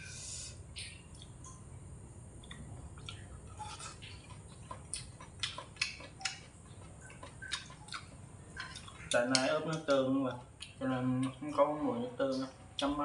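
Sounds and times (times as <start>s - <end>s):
faint low hum: 0.0s - 13.0s
wet mouth clicks and smacks: 2.4s - 9.9s, 10.6s - 11.4s
person chewing: 2.4s - 13.0s.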